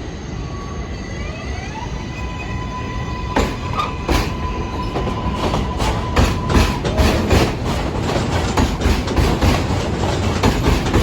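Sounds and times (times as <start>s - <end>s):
traction motor whine: 0.3s - 7.4s
wheels clacking over rail joints: 2.2s - 11.0s.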